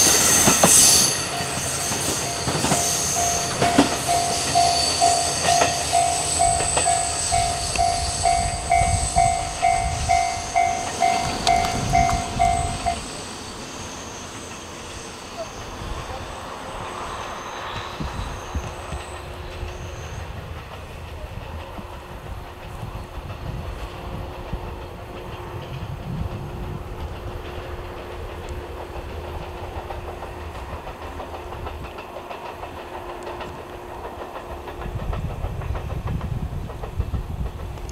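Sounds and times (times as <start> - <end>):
distant train rumbling on track: 0.0 - 37.9.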